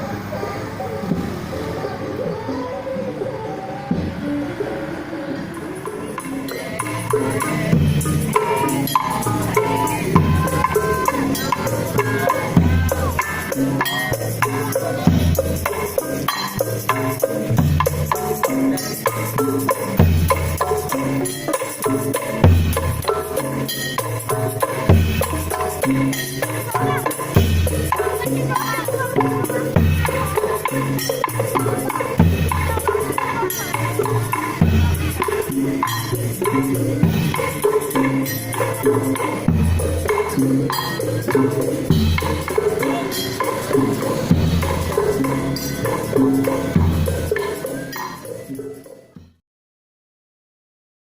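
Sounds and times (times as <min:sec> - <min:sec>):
slit drums and drums beating: 0:01.0 - 0:02.5, 0:05.5 - 0:49.3
percussion melody: 0:05.4 - 0:49.4.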